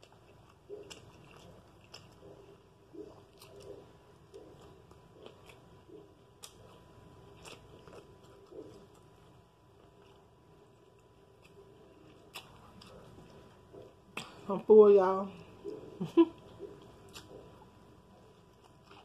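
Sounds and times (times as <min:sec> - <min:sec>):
person chewing: 0:00.0 - 0:14.5, 0:15.5 - 0:19.0.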